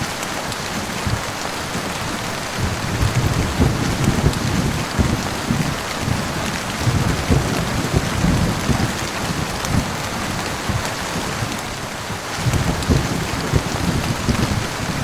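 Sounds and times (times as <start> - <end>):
heavy rain: 0.0 - 15.0
thunder rumbling: 0.0 - 15.0.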